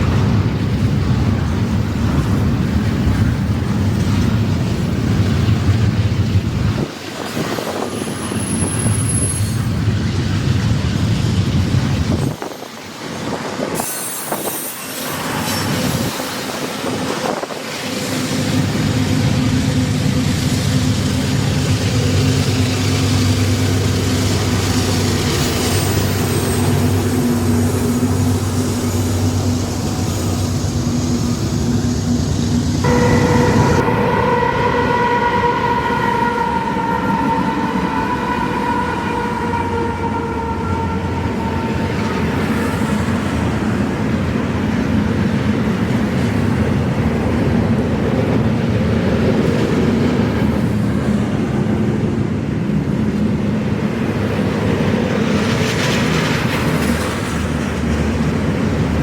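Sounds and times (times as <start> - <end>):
wind buffeting microphone: 0.0 - 14.5, 15.6 - 59.0
freight train rumbling on rails: 0.0 - 59.0
locomotive horn: 32.8 - 43.4.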